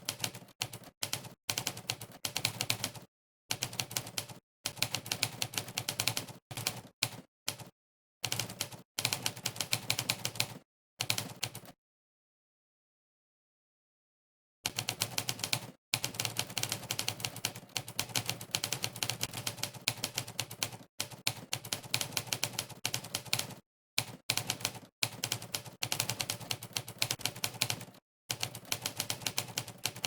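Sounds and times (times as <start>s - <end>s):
typewriter keystroke clacks: 14.7s - 30.0s.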